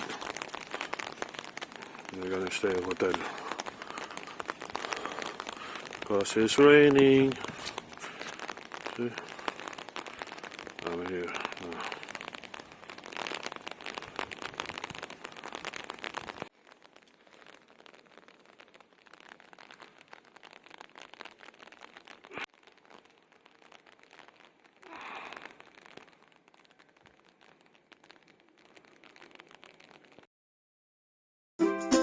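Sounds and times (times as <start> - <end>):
rain pattering: 0.0 - 30.3.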